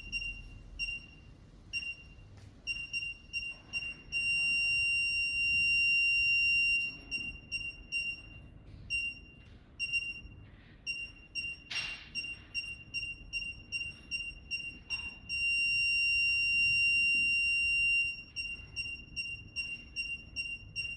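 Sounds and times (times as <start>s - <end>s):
parking sensor beeping: 0.0s - 20.9s.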